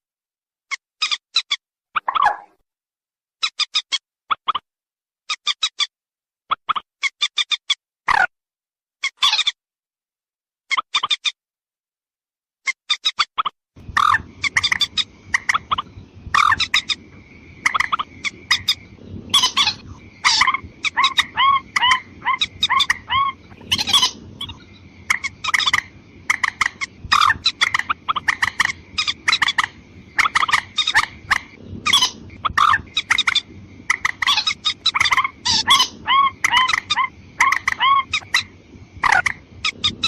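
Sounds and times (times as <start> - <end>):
bird lure calls: 12.7 - 40.0.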